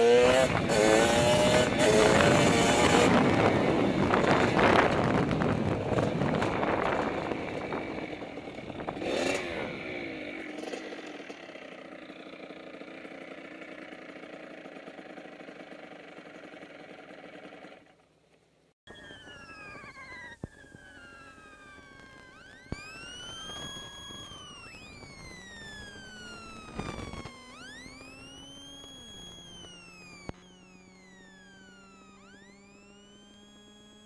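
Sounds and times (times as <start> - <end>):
dirt bike engines revving: 0.0 - 13.3, 22.3 - 31.4
faint engine drone: 0.0 - 34.0.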